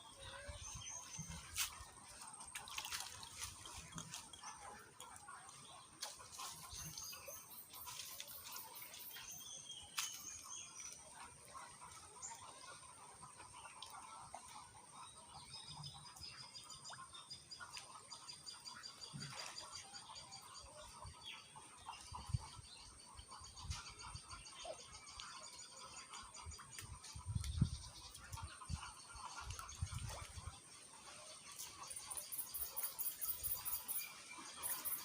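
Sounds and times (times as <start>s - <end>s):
small birds chirping: 31.4s - 35.0s.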